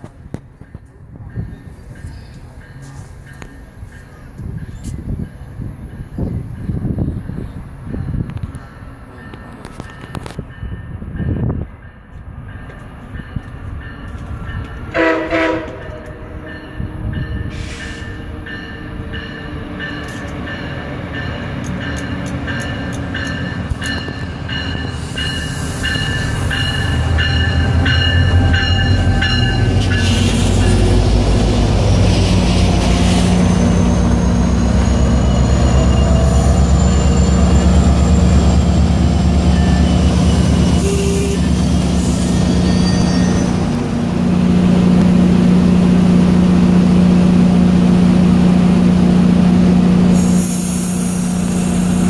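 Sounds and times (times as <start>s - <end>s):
train coaches rolling past: 0.0s - 52.0s
locomotive bell ringing: 9.1s - 31.0s, 33.3s - 43.8s
train horn blast: 14.9s - 16.5s, 39.5s - 43.7s.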